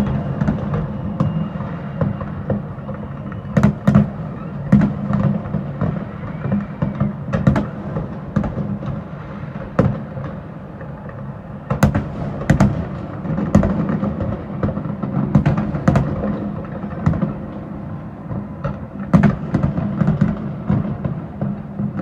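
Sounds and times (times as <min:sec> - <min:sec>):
fireworks bangs and booms: 0:00.0 - 0:22.0.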